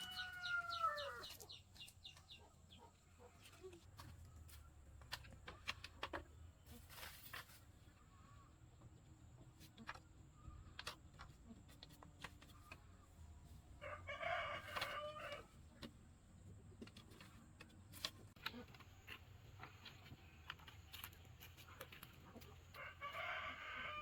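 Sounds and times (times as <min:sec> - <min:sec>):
rooster crowing: 0:00.0 - 0:01.3, 0:13.8 - 0:15.5, 0:22.8 - 0:24.0.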